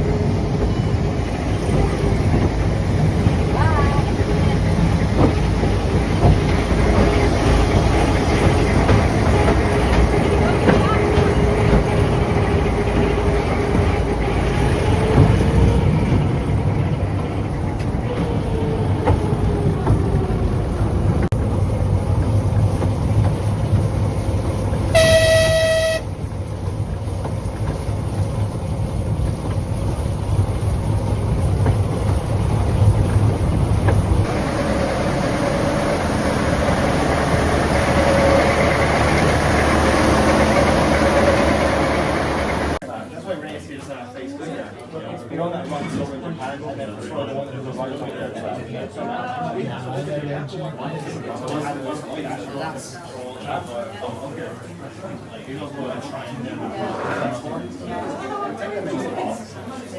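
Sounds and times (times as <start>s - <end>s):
train rumbling: 0.0s - 42.8s
locomotive whistle blast: 24.9s - 26.1s.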